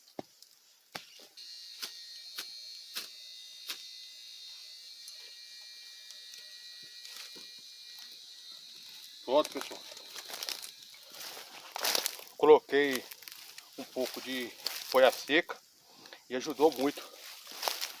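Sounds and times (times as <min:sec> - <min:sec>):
high-pitched buzz: 0:01.4 - 0:15.4, 0:16.4 - 0:18.0.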